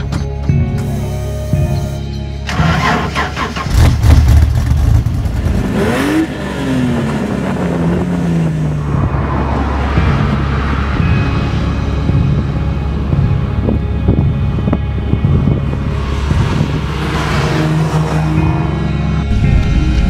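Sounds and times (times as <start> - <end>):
car engine starting and revving: 2.4 - 12.4, 14.6 - 20.0.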